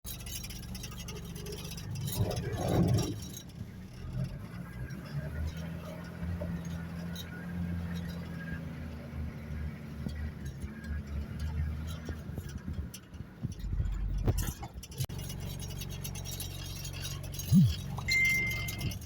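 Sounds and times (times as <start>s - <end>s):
vehicle engine humming: 0.1s - 19.0s.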